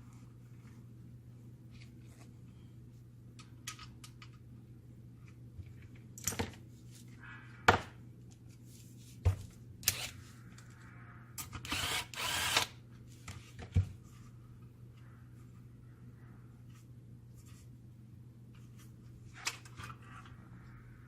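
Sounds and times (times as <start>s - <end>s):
steady low hum: 0.0s - 21.0s
clicks and knocks of parts: 3.4s - 4.4s
small power tool whirring: 9.8s - 10.1s, 11.6s - 12.7s.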